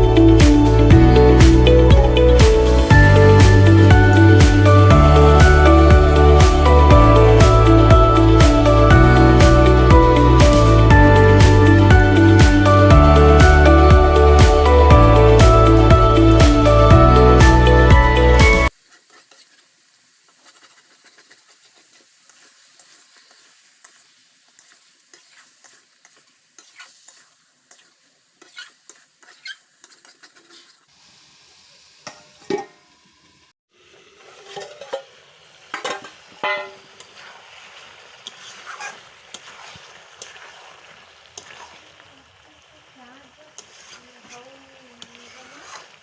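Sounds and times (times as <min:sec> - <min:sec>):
light sizzling: 0:00.0 - 0:46.0
utensil scraping a cooking pot: 0:18.8 - 0:30.9, 0:34.2 - 0:35.1, 0:38.2 - 0:40.7, 0:41.4 - 0:41.9, 0:43.6 - 0:46.0.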